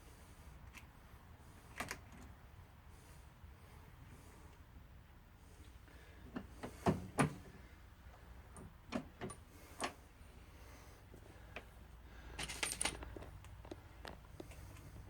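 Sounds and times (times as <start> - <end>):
metallic clicks of brass cases: 12.3 - 14.9.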